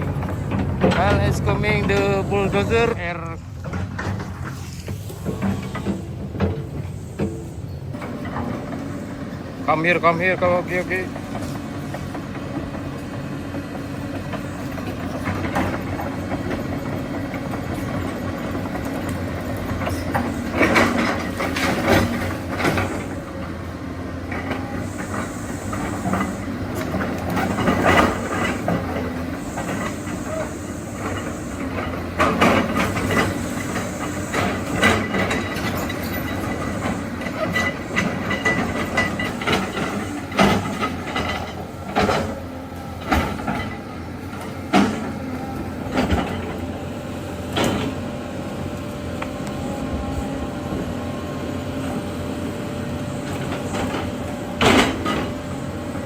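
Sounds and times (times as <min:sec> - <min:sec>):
diesel engine running: 0:00.0 - 0:56.0
metal clanking of tracks: 0:00.0 - 0:56.0.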